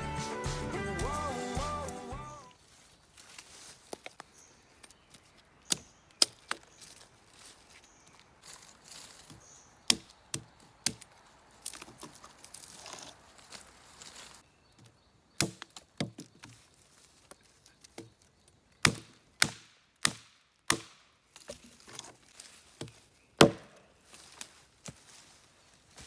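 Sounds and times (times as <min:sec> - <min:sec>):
firewood being split: 0:02.6 - 0:25.4.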